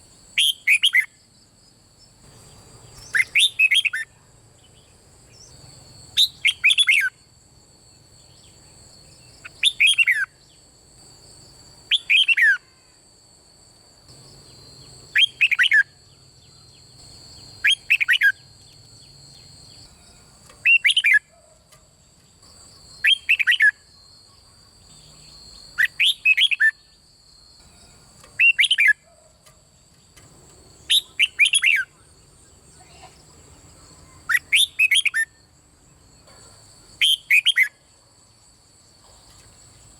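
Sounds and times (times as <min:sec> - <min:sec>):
bird singing whistled phrases: 0:00.4 - 0:01.2, 0:03.0 - 0:04.1, 0:06.2 - 0:07.2, 0:09.4 - 0:10.4, 0:11.9 - 0:12.6, 0:15.1 - 0:16.0, 0:17.6 - 0:18.5, 0:20.6 - 0:21.3, 0:23.0 - 0:23.9, 0:25.7 - 0:27.0, 0:28.4 - 0:29.0, 0:30.9 - 0:32.1, 0:34.1 - 0:35.4, 0:37.0 - 0:37.8.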